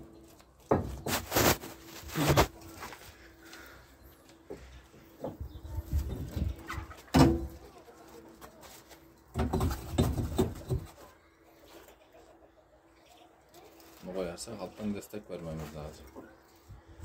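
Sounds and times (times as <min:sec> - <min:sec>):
knocks and thumps: 0:00.7 - 0:01.3, 0:09.3 - 0:11.0.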